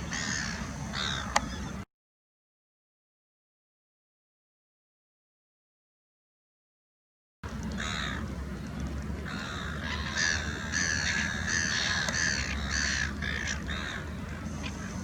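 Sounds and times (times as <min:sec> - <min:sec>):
harsh crow-like bird calls: 0:00.0 - 0:01.8, 0:07.8 - 0:08.3, 0:09.2 - 0:15.0
low steady rumble: 0:07.4 - 0:15.0.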